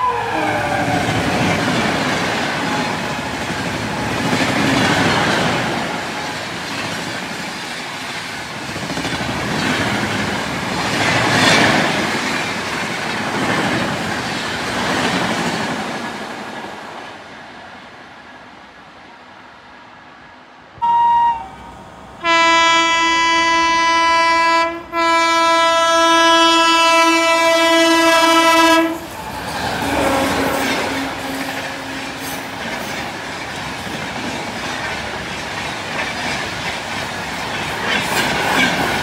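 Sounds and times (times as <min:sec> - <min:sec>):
train passing with loud rush: 0:00.0 - 0:39.0
train horn blasts: 0:20.8 - 0:29.0, 0:29.8 - 0:32.5.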